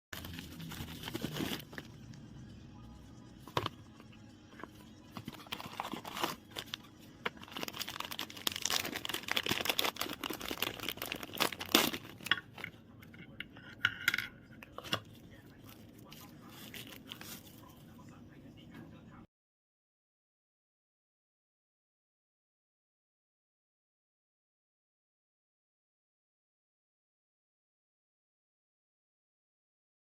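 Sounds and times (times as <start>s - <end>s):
packaging crinkling and tearing: 0.2s - 2.0s, 5.2s - 12.7s, 16.1s - 17.6s.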